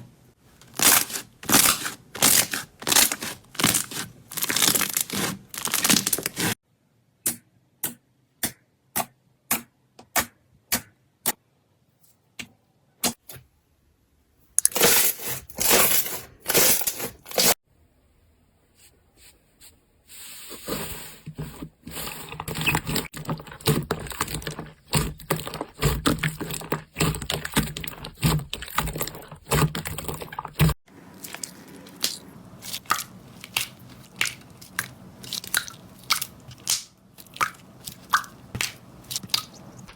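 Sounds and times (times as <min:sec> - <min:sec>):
slime crackling and scraping: 0:00.5 - 0:06.6, 0:14.6 - 0:17.6, 0:20.1 - 0:39.9
slime crunching: 0:00.6 - 0:06.6, 0:22.2 - 0:39.9.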